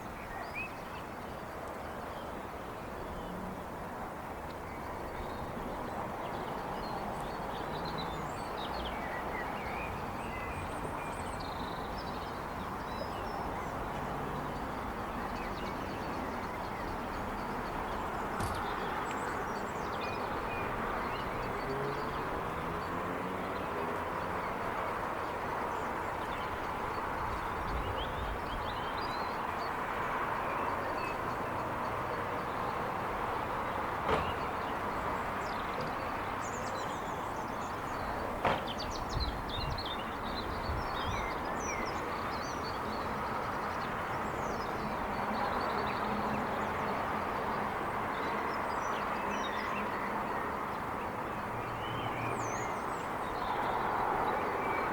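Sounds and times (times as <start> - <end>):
distant traffic hum: 0.0 - 54.9.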